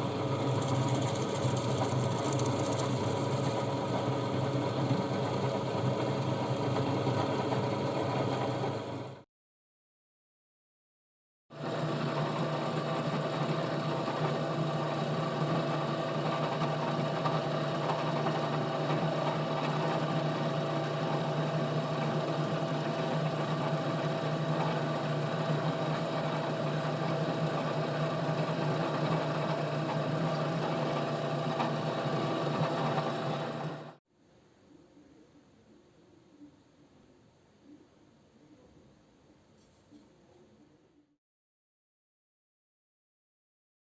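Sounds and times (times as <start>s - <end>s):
electric tool motor whining: 11.6s - 34.0s.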